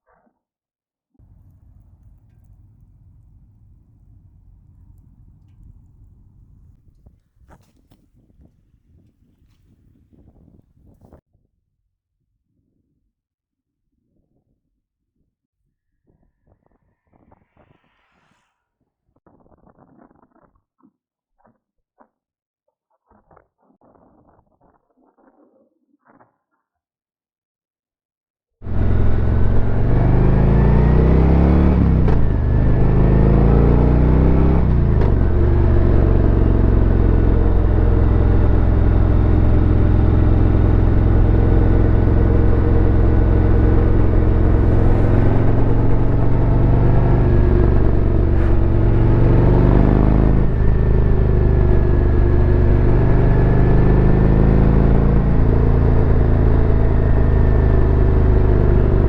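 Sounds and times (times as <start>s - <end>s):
motorcycle engine accelerating: 1.2s - 8.6s, 28.6s - 59.0s.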